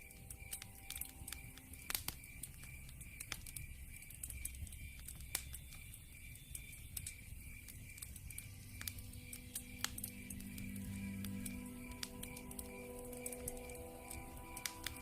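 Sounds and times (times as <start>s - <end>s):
cricket chirping: 0.0s - 15.0s
log fire crackling and popping: 0.0s - 15.0s.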